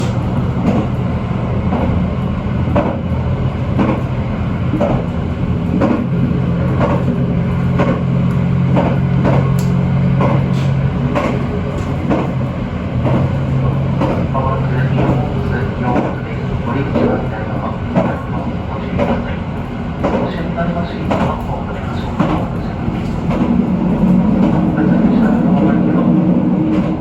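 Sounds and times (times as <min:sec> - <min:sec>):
diesel engine hum: 0:00.0 - 0:20.1
wheels clacking over rail joints: 0:00.0 - 0:25.4.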